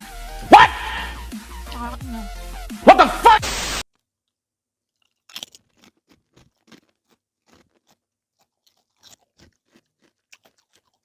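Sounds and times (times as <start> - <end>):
chewing and crunching food: 3.9 - 11.0.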